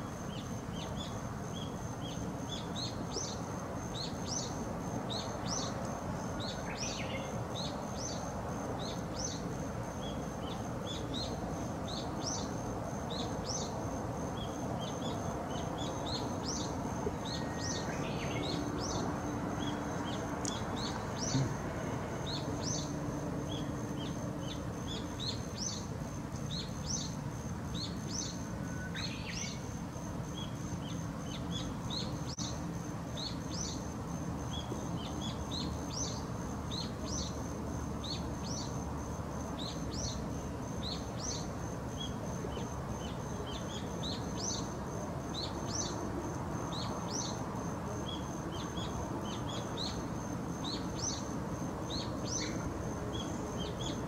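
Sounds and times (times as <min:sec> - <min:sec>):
small birds chirping: 0:00.0 - 0:46.0, 0:46.6 - 0:54.0
lower rising bird call: 0:19.6 - 0:22.9.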